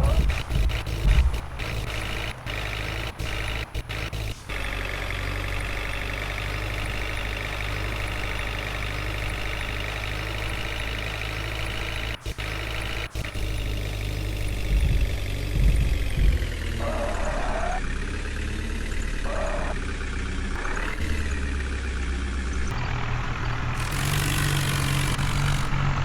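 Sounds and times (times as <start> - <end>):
low thumps: 0.0 - 4.5, 11.8 - 17.8
heavy diesel engine running: 0.0 - 26.0.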